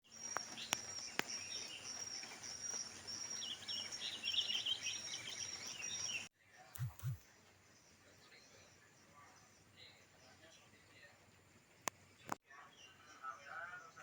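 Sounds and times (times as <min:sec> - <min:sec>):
birds twittering: 0:00.0 - 0:14.0
high short chirp: 0:06.8 - 0:07.2
sharp clicks: 0:06.8 - 0:07.2.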